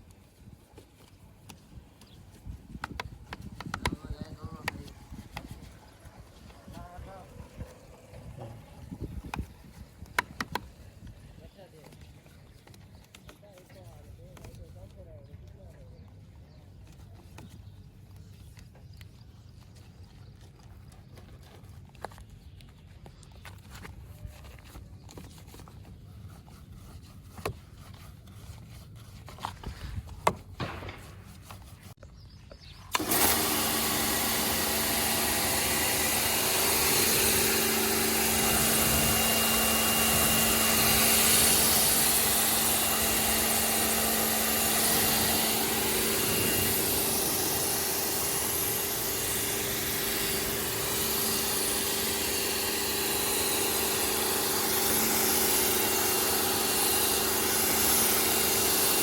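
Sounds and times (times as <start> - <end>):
pressure washer motor hum: 32.9 - 59.0.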